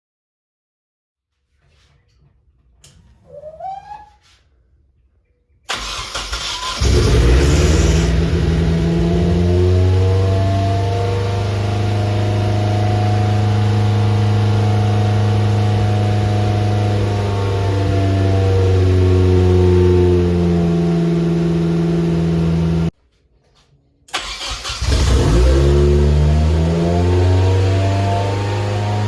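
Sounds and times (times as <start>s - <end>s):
car engine running: 6.7s - 22.9s.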